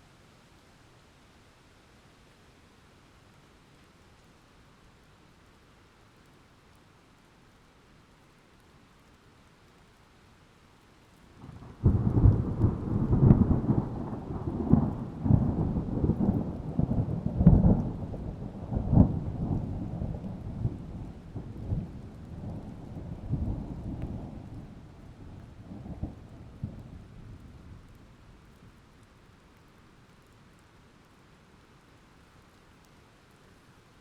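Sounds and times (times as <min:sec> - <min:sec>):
steady rain: 0:00.0 - 0:34.0
thunder rumbling and cracking: 0:11.4 - 0:28.0.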